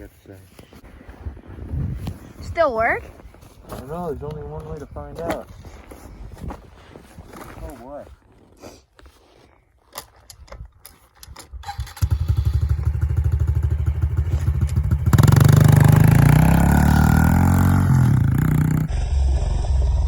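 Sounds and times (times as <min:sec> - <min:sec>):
motorbike engine revving: 0:11.6 - 0:18.9.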